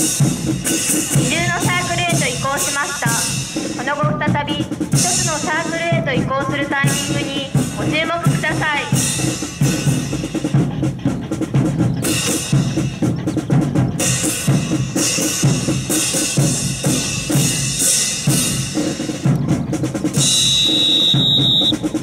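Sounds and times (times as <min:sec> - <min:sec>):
bass and snare drums: 0:00.0 - 0:22.0
high-pitched steady tone: 0:20.2 - 0:21.8.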